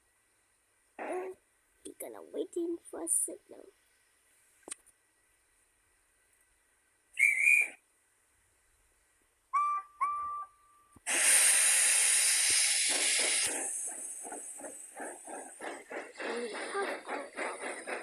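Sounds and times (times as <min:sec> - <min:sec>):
steam locomotive whistle toots: 0:07.2 - 0:07.8, 0:09.5 - 0:13.5
hiss of steam: 0:11.0 - 0:18.0
locomotive chuffing: 0:11.1 - 0:18.0.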